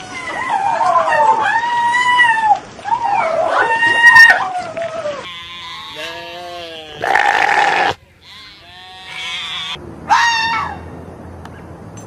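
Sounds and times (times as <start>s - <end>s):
ram bleating: 5.2s - 9.8s.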